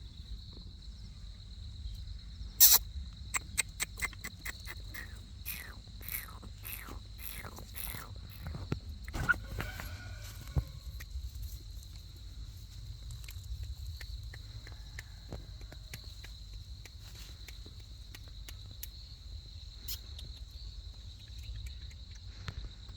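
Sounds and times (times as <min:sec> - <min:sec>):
insects droning: 0:00.0 - 0:22.9
faint ticks and taps: 0:10.5 - 0:22.9.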